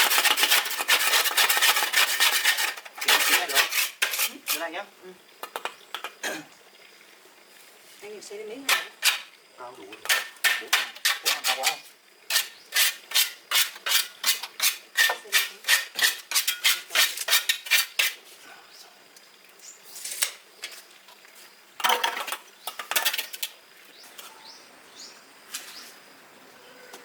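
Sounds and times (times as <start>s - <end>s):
scraping on a hard surface: 0.0s - 4.7s, 11.1s - 18.2s.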